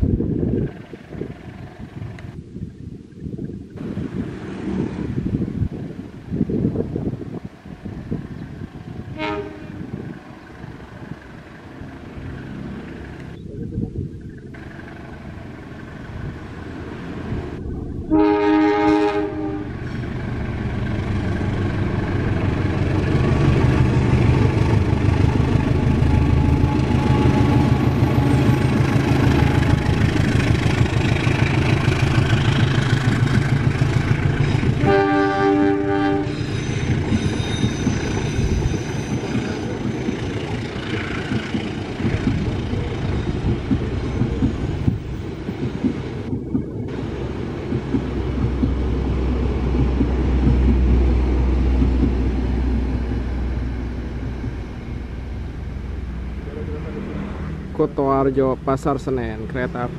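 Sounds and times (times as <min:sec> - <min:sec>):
train rumbling on rails: 0:00.0 - 0:02.7, 0:03.4 - 0:59.9
train horn blast: 0:09.1 - 0:10.0, 0:18.1 - 0:19.8, 0:26.0 - 0:29.8, 0:34.8 - 0:36.8.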